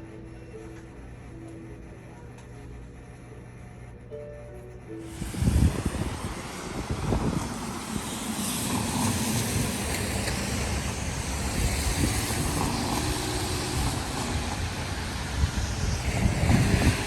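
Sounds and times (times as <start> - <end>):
traffic rumble: 5.0 - 17.0
rain hiss: 5.1 - 17.0.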